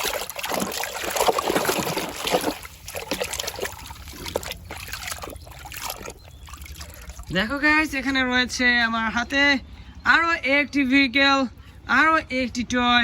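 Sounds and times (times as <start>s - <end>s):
water splashing and trickling: 0.0s - 8.2s.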